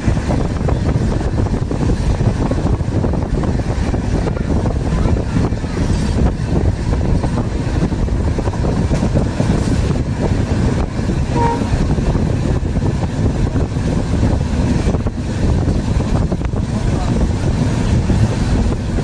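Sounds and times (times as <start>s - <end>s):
train rumbling on rails: 0.0s - 19.0s
short faint tone: 11.3s - 11.7s.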